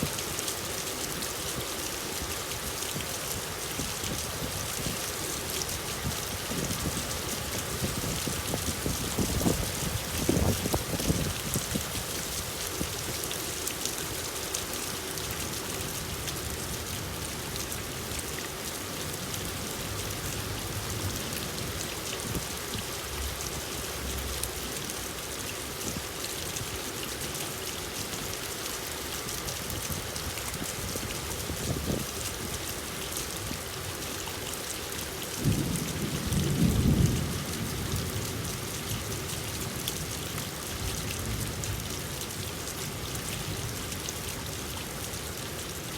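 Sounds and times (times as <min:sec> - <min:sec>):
steady rain falling: 0:00.0 - 0:45.9
thunder rumbling: 0:35.4 - 0:38.3.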